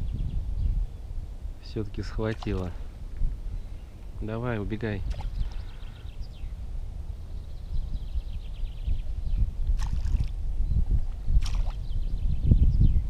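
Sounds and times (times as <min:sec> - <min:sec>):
small bird chirping trills: 0:04.8 - 0:13.0.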